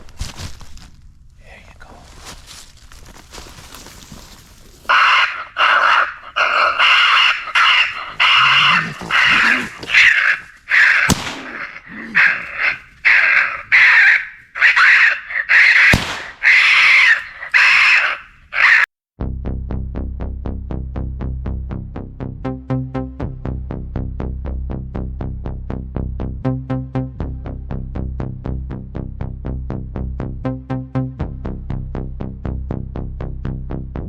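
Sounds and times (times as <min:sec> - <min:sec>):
harsh raspy squaller calls: 0:04.9 - 0:18.9.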